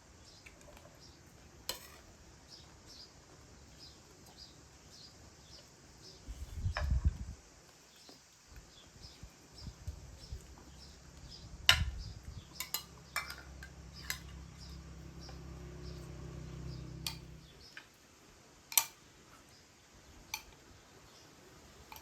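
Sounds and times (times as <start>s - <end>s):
cutlery clinking against dishes: 1.7s - 2.0s, 12.6s - 14.3s
low steady hum: 9.0s - 17.8s.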